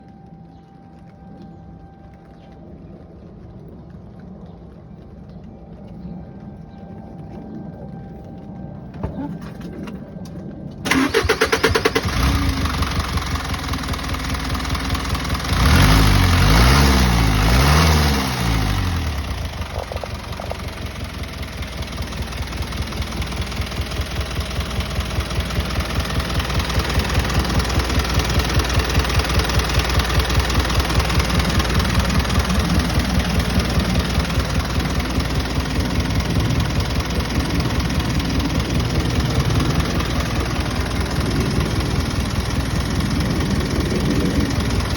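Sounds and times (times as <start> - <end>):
diesel engine starting and revving: 10.8 - 44.9.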